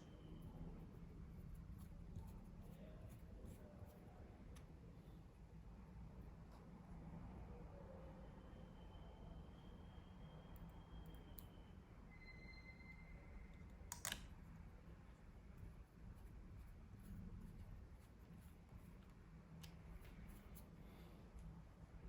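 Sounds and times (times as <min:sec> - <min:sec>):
laptop parts clicking: 0:13.8 - 0:14.3.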